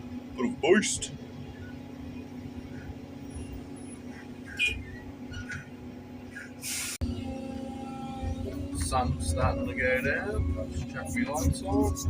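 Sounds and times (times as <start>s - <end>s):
excavator diesel engine running: 0.0s - 12.0s
short hisses: 6.3s - 7.0s.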